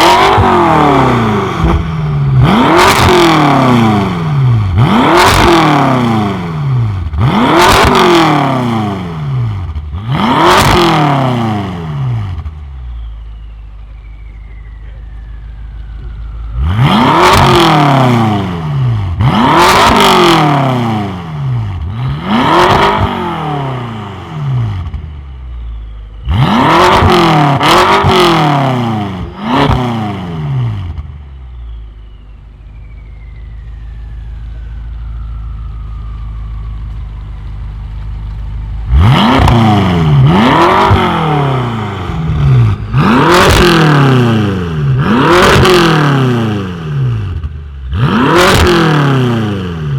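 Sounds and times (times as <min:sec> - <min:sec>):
car engine revving: 0:00.0 - 0:49.9
car engine idling: 0:11.8 - 0:19.3, 0:24.0 - 0:26.5, 0:30.4 - 0:45.1.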